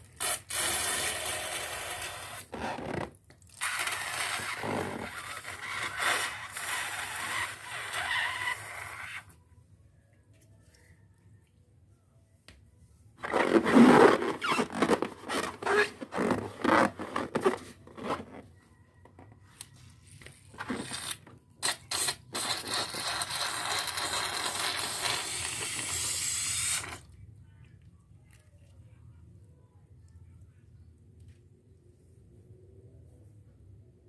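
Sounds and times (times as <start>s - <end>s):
air escaping from balloon: 3.6s - 9.2s.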